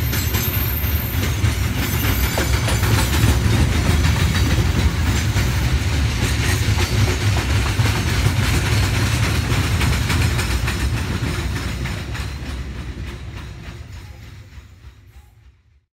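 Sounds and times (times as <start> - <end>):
wheels clicking over rail joints: 0.0 - 15.2
freight train wagons rolling: 0.0 - 15.8.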